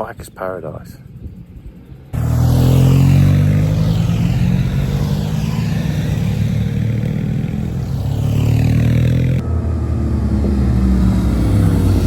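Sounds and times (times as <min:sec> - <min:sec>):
motorcycle engine running: 0:02.1 - 0:09.5.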